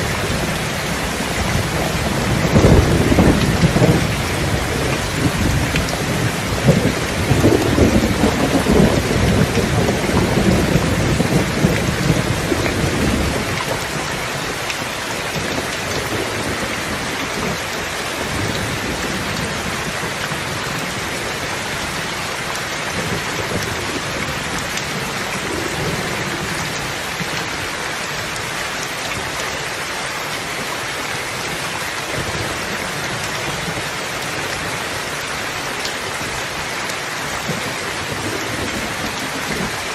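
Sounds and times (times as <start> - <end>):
low rumble of thunder: 0.0 - 14.7
steady rain falling: 0.0 - 39.9.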